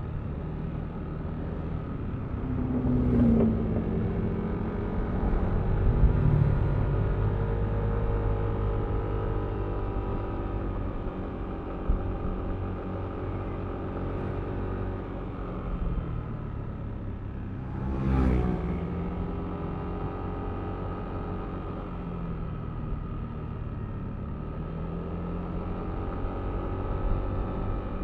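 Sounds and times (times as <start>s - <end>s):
vehicle passing by: 2.4s - 7.6s, 17.5s - 19.4s.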